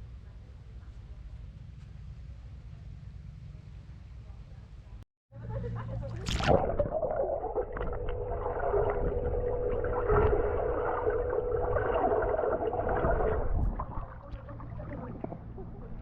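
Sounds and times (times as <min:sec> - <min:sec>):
water noise: 0:05.8 - 0:16.0
boat engine whine: 0:06.9 - 0:16.0
low engine rumble: 0:06.9 - 0:16.0.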